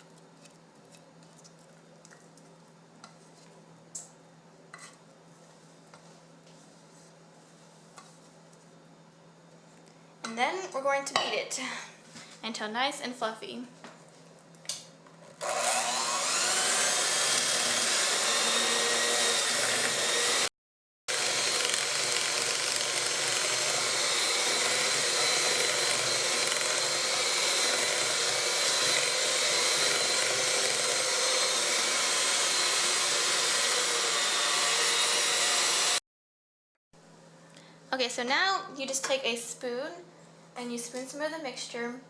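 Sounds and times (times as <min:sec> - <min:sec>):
electric mixer whining: 0:15.4 - 0:20.5, 0:21.1 - 0:36.0.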